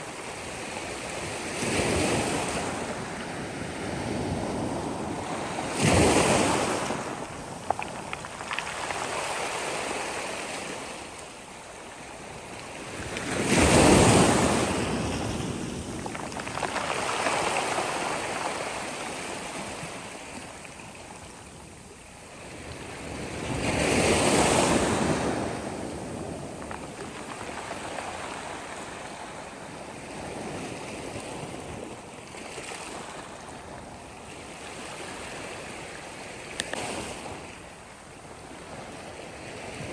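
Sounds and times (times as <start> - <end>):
sea waves breaking: 0.0 - 11.1, 13.0 - 20.4.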